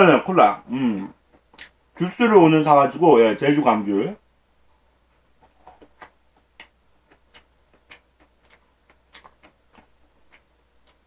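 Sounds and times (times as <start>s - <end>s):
person chewing food: 5.2s - 11.0s.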